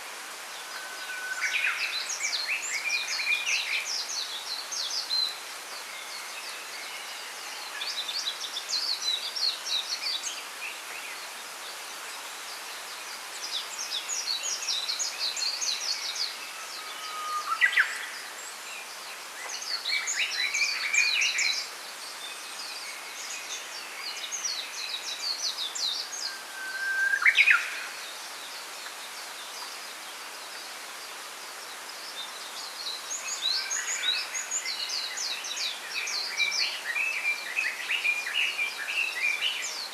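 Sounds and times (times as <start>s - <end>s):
background hiss: 0.0s - 39.9s
songbirds twittering: 0.3s - 39.9s
whistled bird song: 14.0s - 18.2s, 22.7s - 28.0s.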